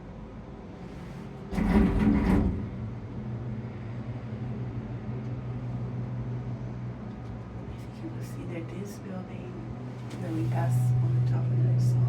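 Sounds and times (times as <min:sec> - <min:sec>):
tramway cabin humming: 0:00.0 - 0:12.0
loud rumbling clatter: 0:01.2 - 0:03.5.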